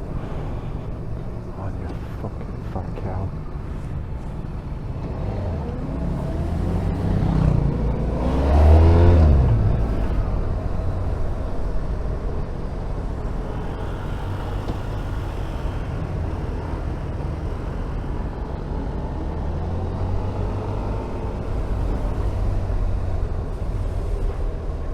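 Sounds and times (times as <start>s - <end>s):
road and wind rumble: 0.0s - 24.9s
motorcycle engine revving: 3.5s - 24.9s.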